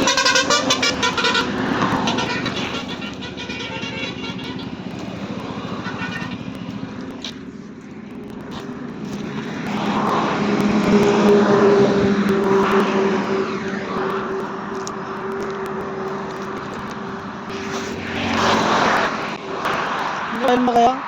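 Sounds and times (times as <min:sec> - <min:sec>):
motorcycle engine droning: 0:00.0 - 0:21.0
wind rushing past microphone: 0:08.2 - 0:21.0.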